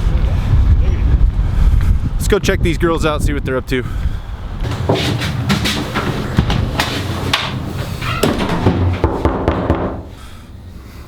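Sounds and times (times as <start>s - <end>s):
wind buffeting microphone: 0.0s - 9.3s
knocks and thumps: 4.6s - 10.2s.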